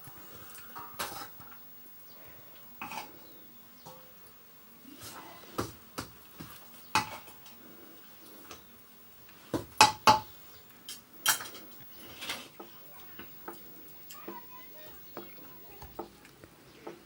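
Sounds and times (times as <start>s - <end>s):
metal utensils clattering on dishes: 0.4s - 1.6s, 2.8s - 3.2s, 6.9s - 7.6s, 10.9s - 13.6s.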